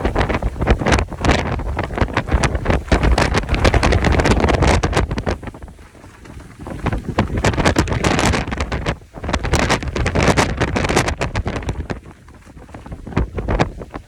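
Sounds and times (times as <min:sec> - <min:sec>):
gusty wind buffeting microphone: 0:00.0 - 0:14.0.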